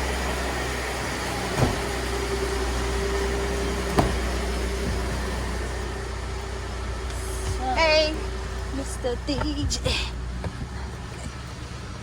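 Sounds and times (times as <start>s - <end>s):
engine and road rumble: 0.0s - 12.0s
short knocks: 3.9s - 5.1s.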